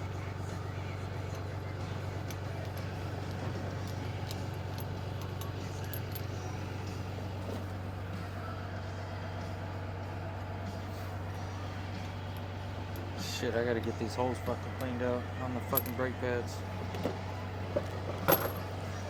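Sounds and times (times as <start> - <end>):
engine idling: 0.0 - 19.0
metallic clinks of tools: 0.8 - 7.2, 11.9 - 16.2, 18.1 - 19.0.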